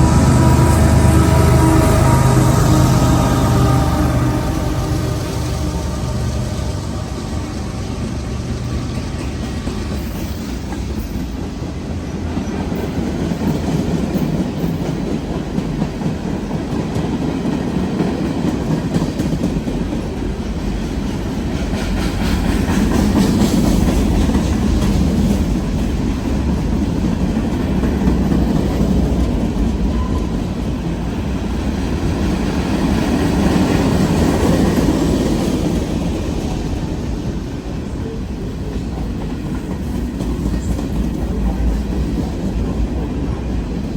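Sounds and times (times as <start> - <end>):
freight train cars rolling past: 0.0 - 43.9.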